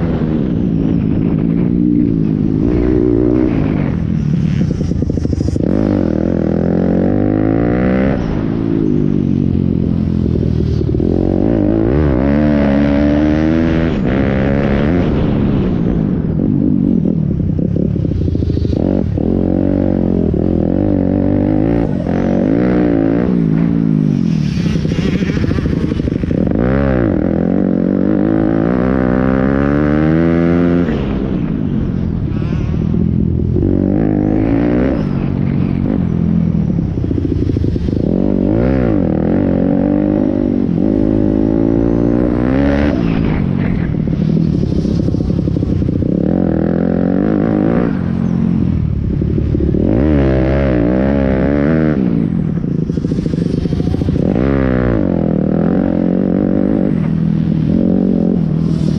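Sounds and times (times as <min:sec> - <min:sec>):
pit bike engines revving: 0:00.0 - 0:58.9.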